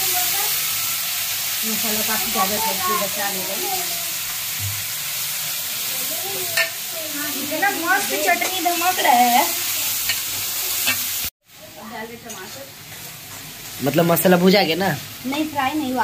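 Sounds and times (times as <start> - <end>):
spice paste sizzling in oil: 0.0 - 16.0.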